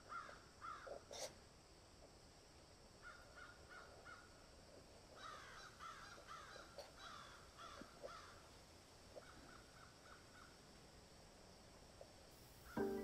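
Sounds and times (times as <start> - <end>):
birds calling faintly: 0.0 - 1.4, 3.0 - 11.0.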